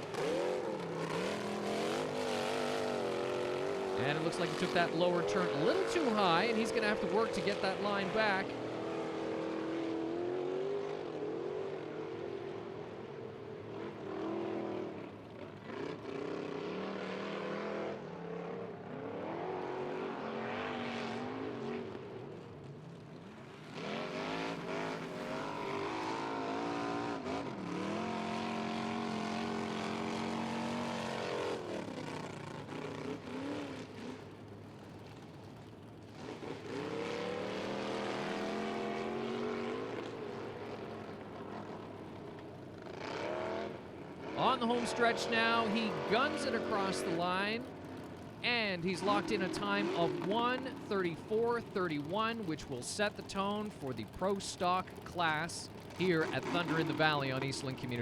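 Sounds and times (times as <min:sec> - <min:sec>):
truck engine revving hard: 0:00.0 - 0:09.5, 0:42.9 - 0:47.6, 0:48.4 - 0:58.0.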